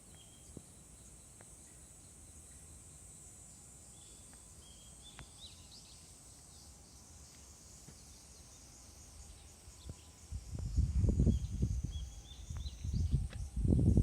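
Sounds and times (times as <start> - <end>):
faint bird chirps: 0.0 - 14.0
high insect drone: 0.0 - 14.0
wind rumble on microphone: 9.8 - 14.0.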